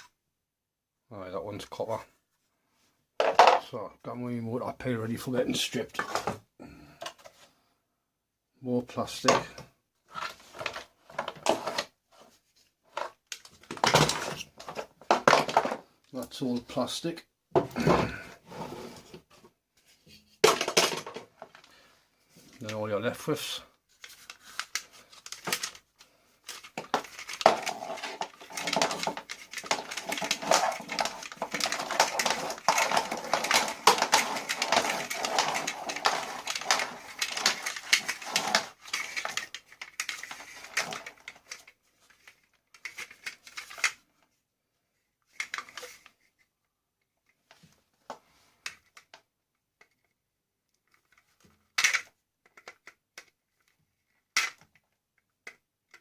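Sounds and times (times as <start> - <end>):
vacuum cleaner parts rattling: 10.1 - 11.9, 12.9 - 15.9, 26.5 - 44.0.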